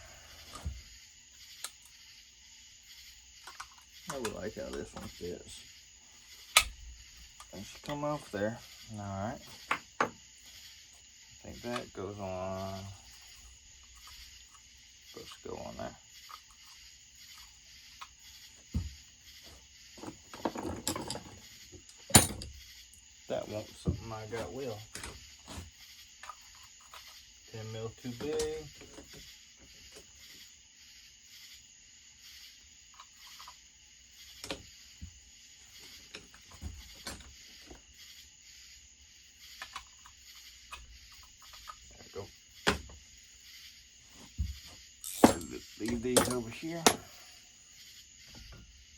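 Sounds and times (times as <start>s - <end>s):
insects chirring: 0.0s - 48.9s
dull knock on workbench: 18.7s - 19.0s
metal tools clicking and clattering: 20.4s - 21.4s, 22.0s - 22.6s, 45.0s - 47.1s.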